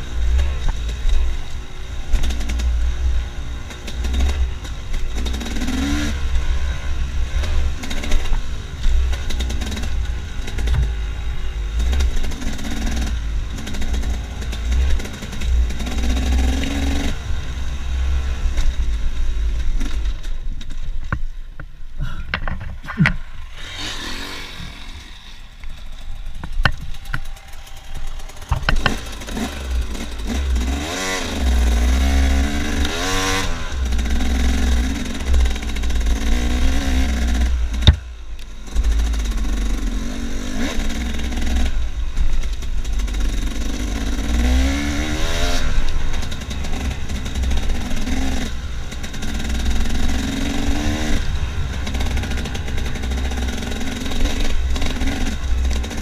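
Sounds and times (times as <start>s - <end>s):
dirt bike engine revving: 0.0s - 20.2s, 22.8s - 56.0s
bike rattles and knocks: 7.4s - 11.0s, 18.5s - 24.0s, 24.6s - 31.0s, 33.9s - 38.1s.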